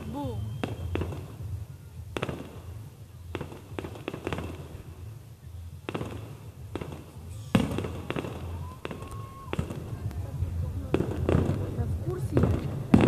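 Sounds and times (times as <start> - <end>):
fireworks bangs: 0.0 - 13.0
steady low rumble: 9.6 - 13.0.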